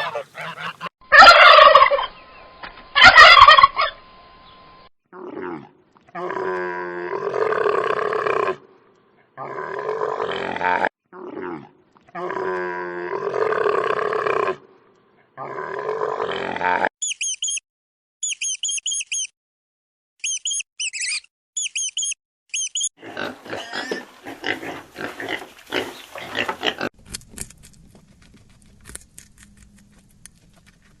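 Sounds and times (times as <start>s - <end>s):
animal rough noisy calls: 0.0s - 2.1s, 3.0s - 4.0s
animal squeaky chirps: 17.0s - 17.6s, 18.2s - 19.3s, 20.2s - 22.9s.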